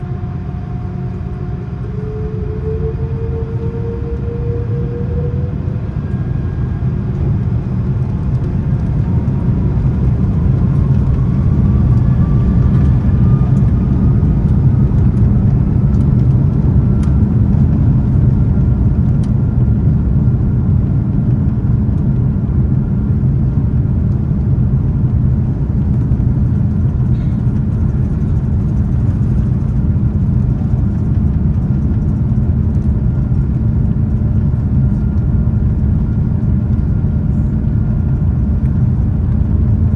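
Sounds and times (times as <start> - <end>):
faint engine whine: 0.0 - 39.9
jet engines roaring: 0.0 - 39.9.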